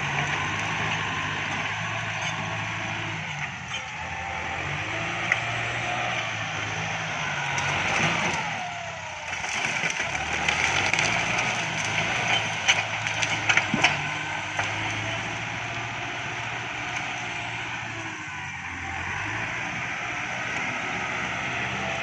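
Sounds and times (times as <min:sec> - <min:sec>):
tractor diesel engine running: 0:00.0 - 0:22.0
wood cracking and snapping: 0:07.5 - 0:15.4.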